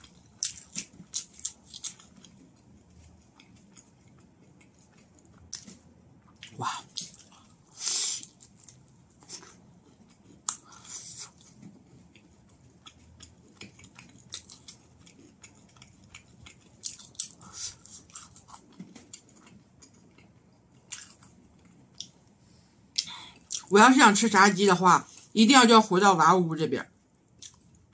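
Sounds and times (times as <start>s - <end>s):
crunchy biting and chewing: 0.0s - 22.1s.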